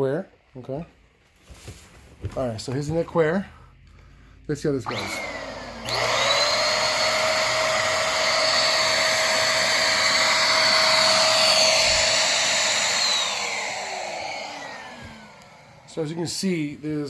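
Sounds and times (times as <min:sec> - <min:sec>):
vacuum cleaner switch: 0:04.8 - 0:15.9
vacuum cleaner motor whine: 0:04.8 - 0:16.3.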